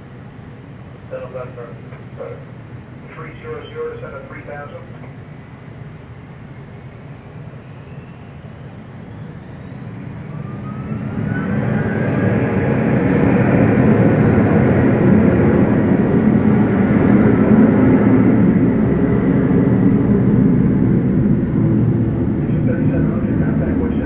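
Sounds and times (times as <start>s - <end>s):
jet engines rumbling: 0.0s - 24.0s
thin rising whine: 7.6s - 24.0s.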